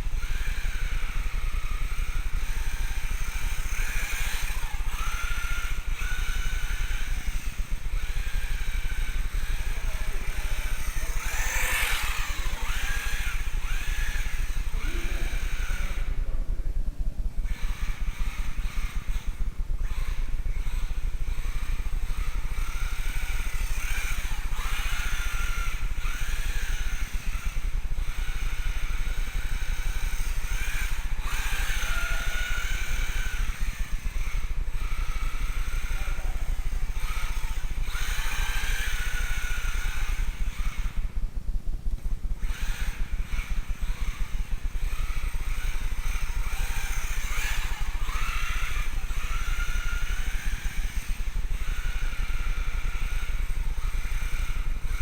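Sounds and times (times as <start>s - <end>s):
rc car electric motor whining: 0.0s - 55.0s
steady low rumble: 4.8s - 24.7s.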